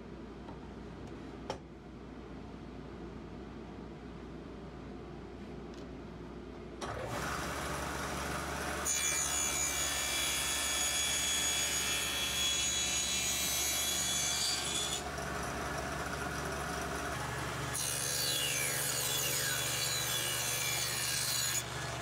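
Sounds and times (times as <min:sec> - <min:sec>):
table saw cutting board: 0:07.0 - 0:22.0.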